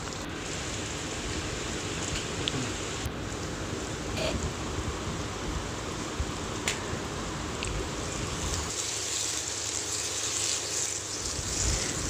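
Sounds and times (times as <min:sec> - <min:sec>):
chicken sizzling in a pan: 0:08.1 - 0:12.0.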